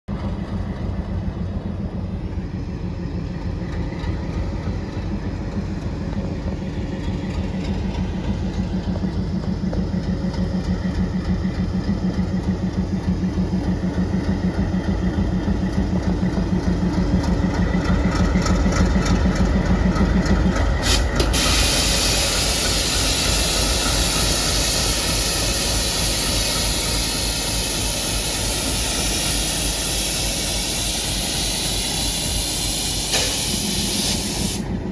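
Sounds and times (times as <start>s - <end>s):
diesel locomotive engine idling: 0.1s - 34.9s
compressed air hissing: 20.8s - 34.8s.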